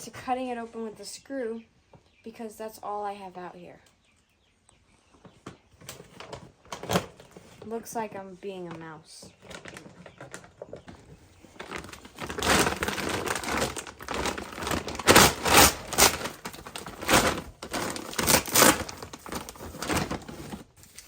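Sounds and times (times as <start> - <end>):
package crinkling and ripping: 9.4 - 10.6, 11.5 - 21.0.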